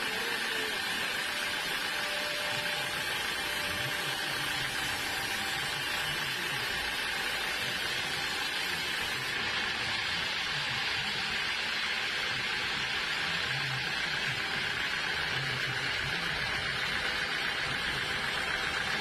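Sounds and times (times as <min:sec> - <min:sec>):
sawmill saw hissing: 0:00.0 - 0:11.5.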